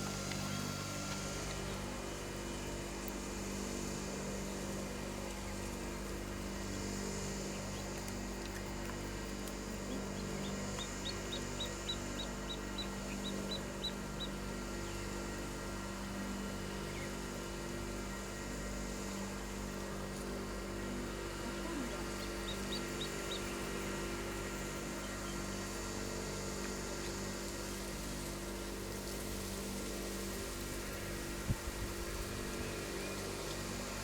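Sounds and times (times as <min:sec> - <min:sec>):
steady low hum: 0:00.0 - 0:34.0
bird chirping: 0:09.9 - 0:14.3.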